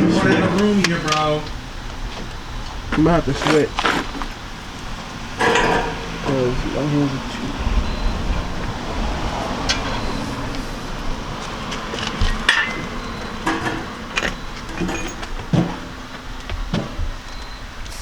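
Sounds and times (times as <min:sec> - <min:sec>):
low background noise: 0:00.0 - 0:18.0
metal clinks and knocks: 0:00.4 - 0:06.3, 0:09.5 - 0:17.6.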